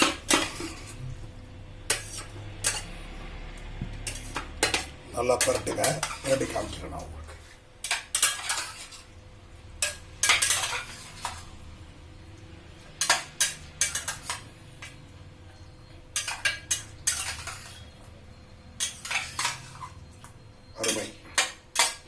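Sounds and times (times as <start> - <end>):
metal spoon scraping a pot: 0.0 - 1.2, 1.9 - 3.2, 4.0 - 9.2, 9.8 - 11.6, 12.9 - 15.0, 16.1 - 18.0, 18.8 - 20.1, 20.8 - 22.0.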